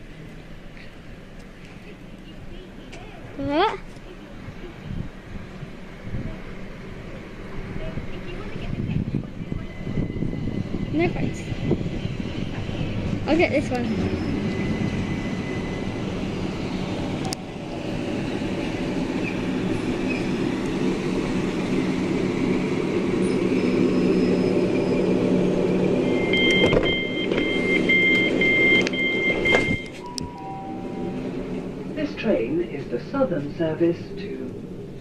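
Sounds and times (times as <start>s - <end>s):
electric train running hum: 0.0s - 35.0s
two-tone door warning beeps: 26.0s - 31.3s.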